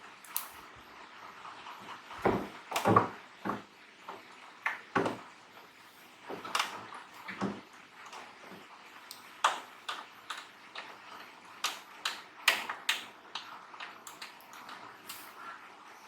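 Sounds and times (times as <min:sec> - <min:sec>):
small tools clicking and tapping: 0:09.0 - 0:11.0, 0:11.6 - 0:15.4.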